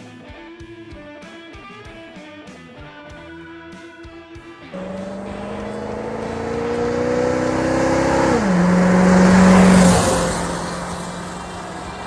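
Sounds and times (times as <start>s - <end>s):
car engine accelerating and passing: 4.8s - 12.0s.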